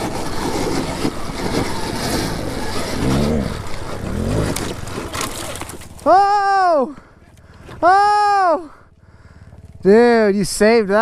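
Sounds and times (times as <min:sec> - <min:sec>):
dirt bike engine revving: 0:00.0 - 0:06.4.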